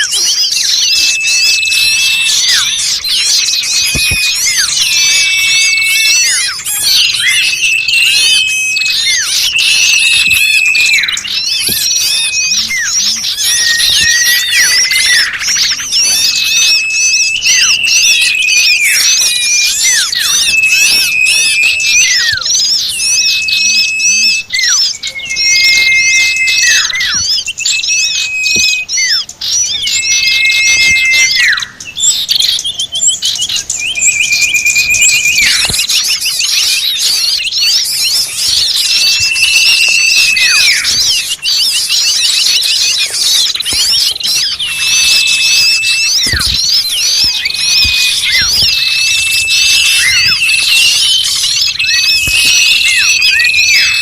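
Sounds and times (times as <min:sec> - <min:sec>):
flock of birds chirping: 0:00.0 - 0:54.0
whistled note dropping: 0:16.0 - 0:31.6, 0:34.0 - 0:54.0.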